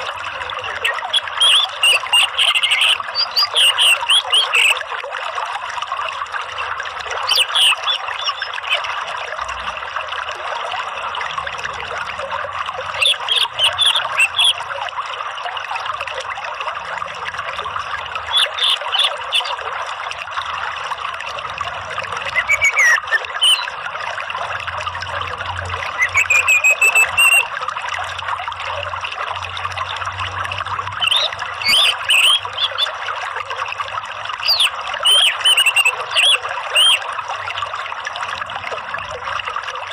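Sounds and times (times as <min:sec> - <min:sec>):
trickling running water: 0:00.0 - 0:39.9
songbird chirps: 0:00.6 - 0:04.8, 0:07.2 - 0:08.9, 0:13.0 - 0:14.6, 0:22.3 - 0:23.8, 0:25.9 - 0:27.4, 0:31.0 - 0:32.9, 0:34.4 - 0:37.0.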